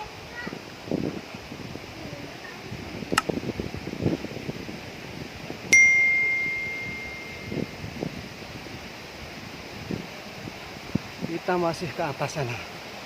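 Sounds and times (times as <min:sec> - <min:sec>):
small metal bell ringing: 0:05.7 - 0:07.7.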